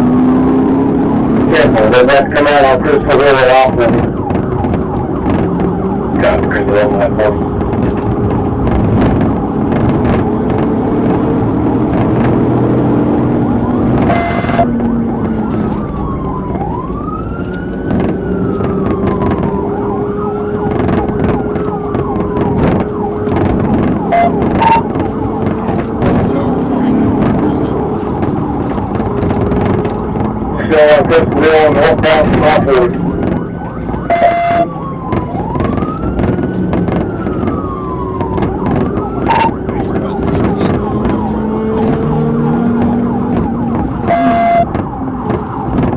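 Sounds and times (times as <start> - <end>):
car engine and road noise: 0.0 - 45.9
police siren wailing: 0.0 - 45.9
short steady beep: 14.1 - 14.7, 24.1 - 24.8, 34.1 - 34.7, 39.3 - 39.5, 44.1 - 44.7.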